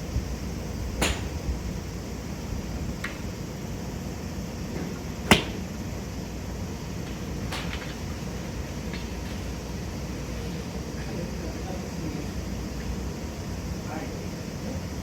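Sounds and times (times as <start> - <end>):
steady low hum: 0.0 - 8.9
golf club striking ball: 0.9 - 1.9, 5.2 - 5.8.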